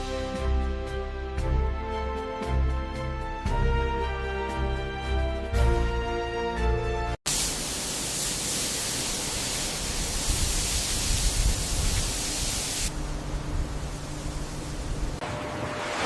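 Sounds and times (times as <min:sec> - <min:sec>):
music: 0:00.0 - 0:07.2
loud rushing hiss: 0:07.3 - 0:13.0.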